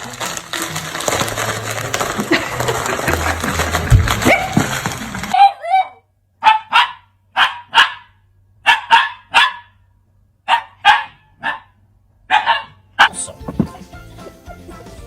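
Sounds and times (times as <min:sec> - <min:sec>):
dog barking: 0:05.4 - 0:13.3.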